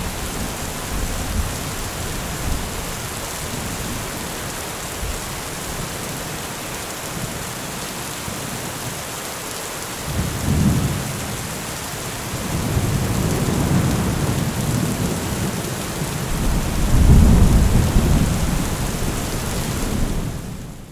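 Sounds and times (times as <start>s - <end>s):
heavy rain falling: 0.0s - 20.9s
deep thunder rumbling: 16.2s - 20.9s.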